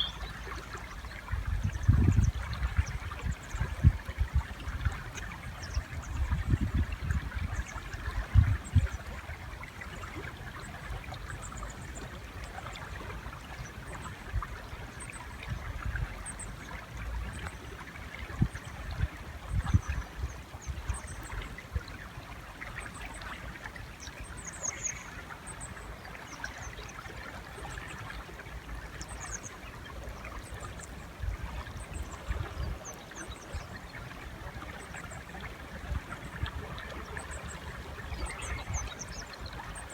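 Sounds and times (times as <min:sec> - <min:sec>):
high bird chirps: 0:00.0 - 0:00.4
river water flowing: 0:00.0 - 0:01.7, 0:02.4 - 0:39.9.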